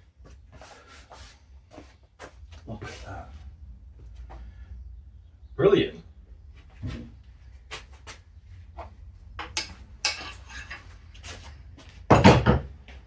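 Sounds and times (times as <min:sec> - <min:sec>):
tools knocking and clicking: 0:09.4 - 0:10.9.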